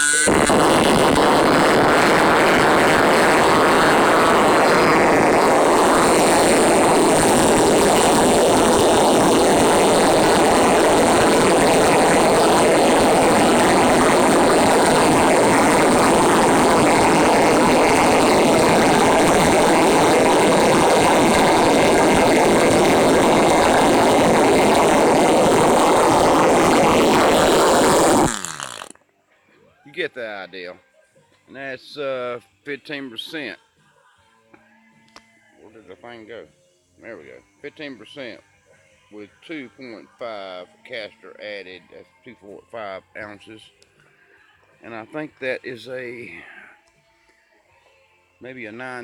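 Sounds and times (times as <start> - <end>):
model engine propeller buzzing: 0.0 - 28.9.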